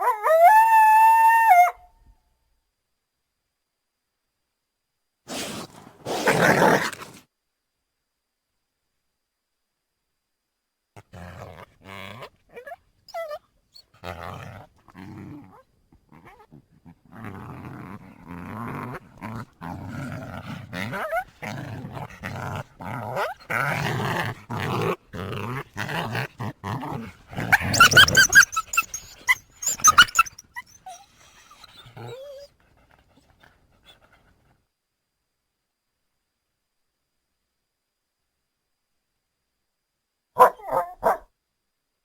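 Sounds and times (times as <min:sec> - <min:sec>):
coyote low rough calls: 0:14.1 - 0:32.1
coyote high-pitched yips: 0:27.6 - 0:31.6.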